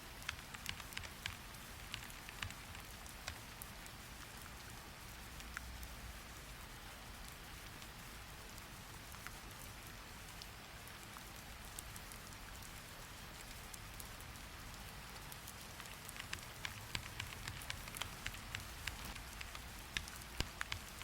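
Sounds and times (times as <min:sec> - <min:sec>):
steady rain falling: 0:00.0 - 0:21.0
sharp ticks: 0:00.2 - 0:03.4, 0:16.0 - 0:21.0.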